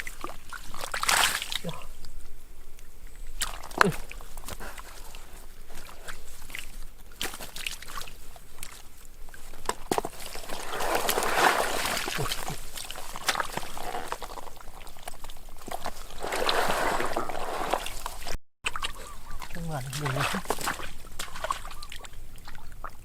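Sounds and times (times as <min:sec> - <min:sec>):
water splashing: 0:00.0 - 0:02.2, 0:02.8 - 0:23.0
water sloshing and trickling: 0:00.0 - 0:23.0.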